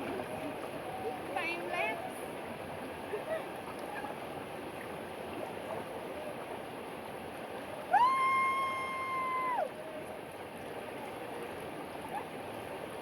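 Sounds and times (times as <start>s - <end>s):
long high cry: 7.9s - 9.7s.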